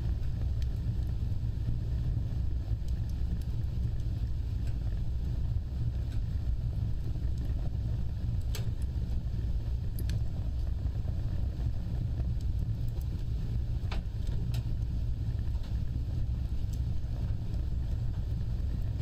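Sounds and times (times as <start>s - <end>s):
fire crackles: 0.0s - 19.0s
wood fire flames rumbling: 0.0s - 19.0s.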